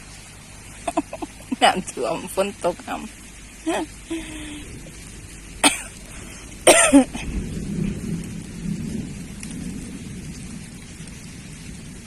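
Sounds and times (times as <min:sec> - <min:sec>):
heavy rain falling: 0:00.0 - 0:12.0
thunder rumble: 0:00.0 - 0:12.0
person coughing: 0:05.6 - 0:05.9, 0:06.6 - 0:07.3.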